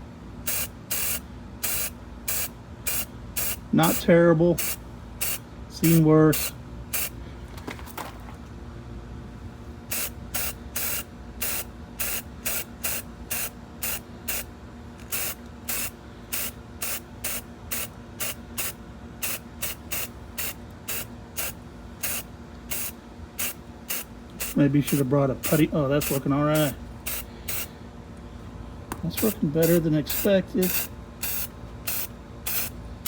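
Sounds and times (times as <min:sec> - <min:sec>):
aerosol can spraying puffs: 0:15.1 - 0:27.7, 0:28.9 - 0:32.7.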